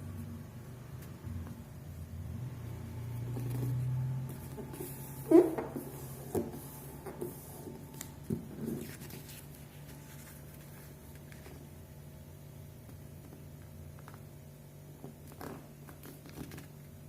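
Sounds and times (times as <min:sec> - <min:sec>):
low steady hum: 0:00.0 - 0:17.0
paper crinkling: 0:06.3 - 0:11.7, 0:15.2 - 0:16.9.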